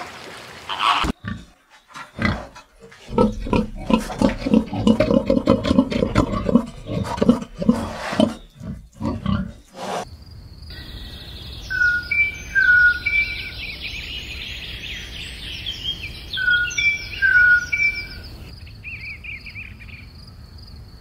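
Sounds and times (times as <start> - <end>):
pig grunting: 0.8 - 10.1
bird chirping: 1.1 - 20.3.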